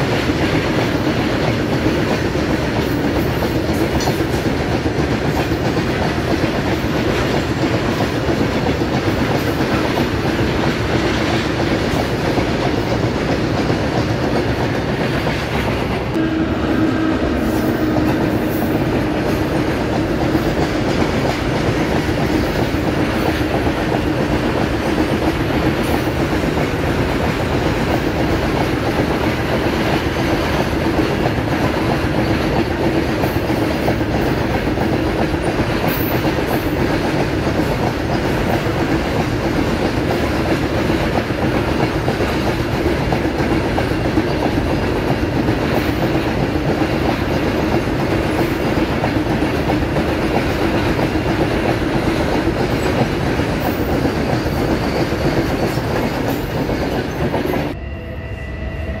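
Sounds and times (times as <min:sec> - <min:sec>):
steady low tone: 0:16.1 - 0:20.2, 0:57.7 - 0:59.0.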